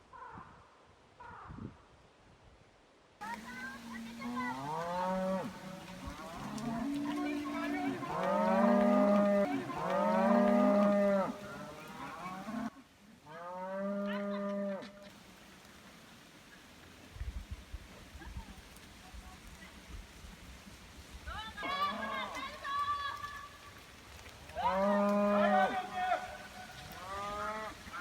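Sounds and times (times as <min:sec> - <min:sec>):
cattle mooing: 0:03.2 - 0:12.7, 0:24.6 - 0:25.9.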